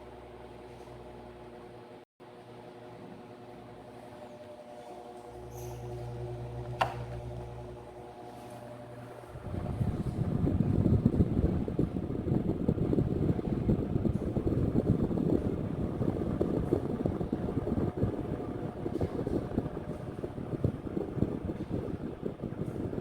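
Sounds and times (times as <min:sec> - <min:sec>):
fan airflow on microphone: 0:03.4 - 0:23.0.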